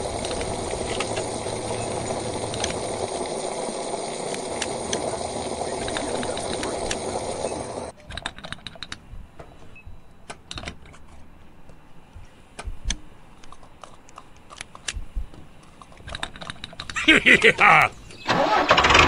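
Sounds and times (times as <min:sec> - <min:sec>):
steady hiss: 0:00.0 - 0:08.0, 0:11.9 - 0:18.6.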